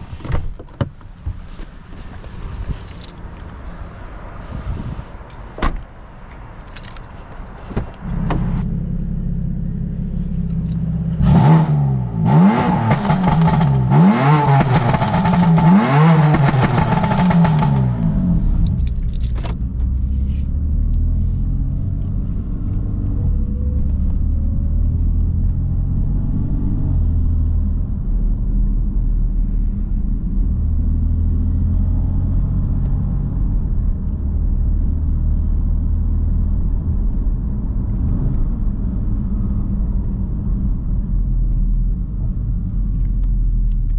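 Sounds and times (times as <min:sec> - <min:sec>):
car engine idling and revving: 0:00.0 - 0:43.9.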